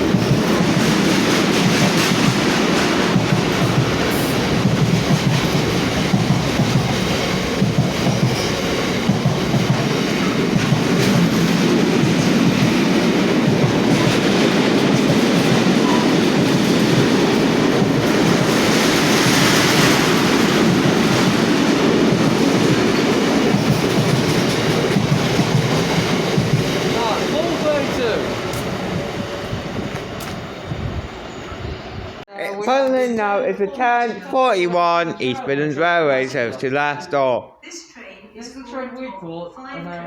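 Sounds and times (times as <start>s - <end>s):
freight train wagons rolling past: 0.0s - 32.2s.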